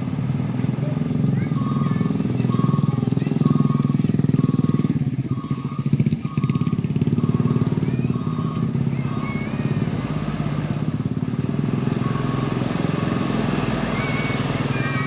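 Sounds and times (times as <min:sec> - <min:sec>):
heavy truck engine running: 0:00.0 - 0:15.0
short high beeps: 0:01.6 - 0:09.8, 0:12.0 - 0:13.2.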